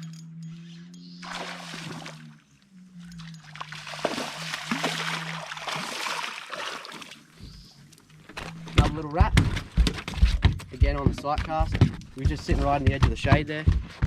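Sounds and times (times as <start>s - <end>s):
steady low hum: 0.0s - 6.5s
fish splashing in water: 1.2s - 2.4s, 3.2s - 7.3s.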